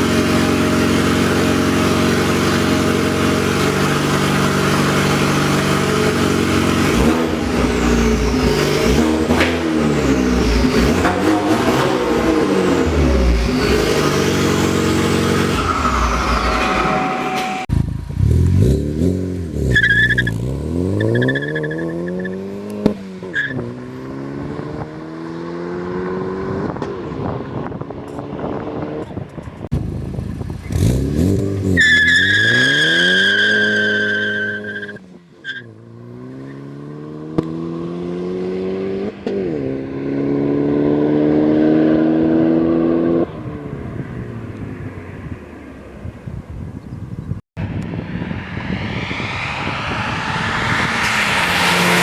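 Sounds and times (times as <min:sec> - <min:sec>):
car accelerating through gears: 0:00.0 - 0:27.3, 0:48.7 - 0:52.0
high squeal: 0:00.1 - 0:17.8, 0:47.6 - 0:52.0
sharp exhaust pops: 0:02.2 - 0:16.8.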